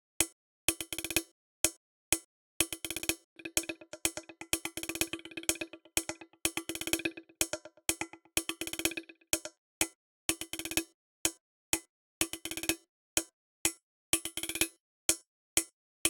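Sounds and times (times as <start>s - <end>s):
electronic percussion loop: 3.4s - 9.5s.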